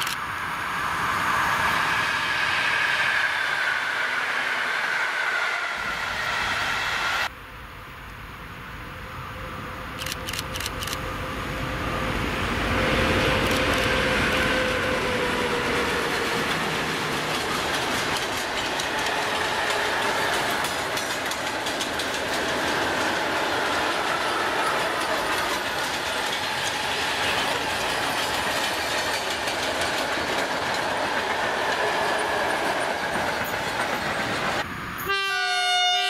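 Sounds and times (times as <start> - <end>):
electric locomotive passing: 0.0 - 36.0
clickety-clack over rail joints: 13.4 - 34.6.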